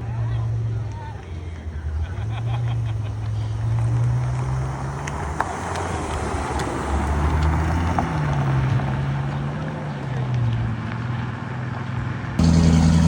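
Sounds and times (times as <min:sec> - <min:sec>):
car engine running at low revs: 0:08.9 - 0:13.0.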